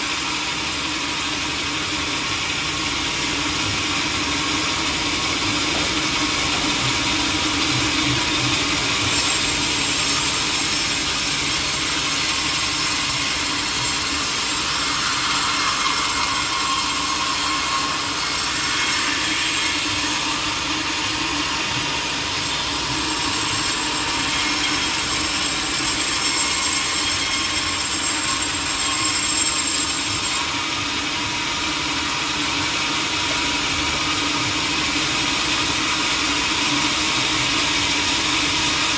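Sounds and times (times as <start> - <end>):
saw cutting log: 0.0 - 38.9.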